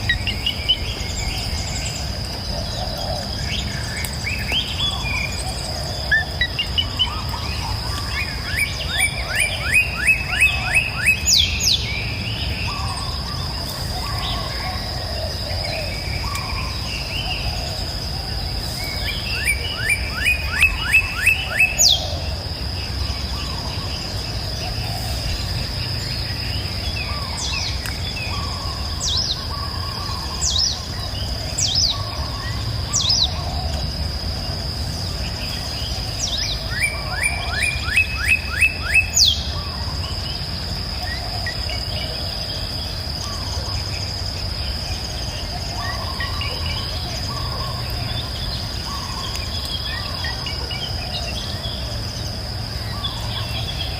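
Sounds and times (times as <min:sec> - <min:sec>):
insect drone: 0:00.0 - 0:53.9.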